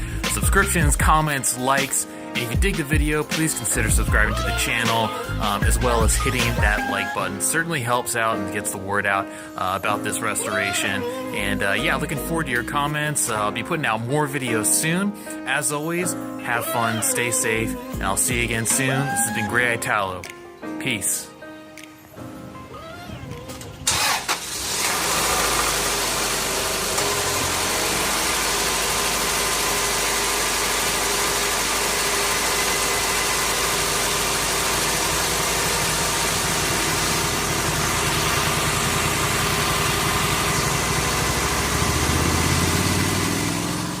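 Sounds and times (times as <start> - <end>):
car engine cranking and idling: 0.0 - 1.3, 23.4 - 44.0.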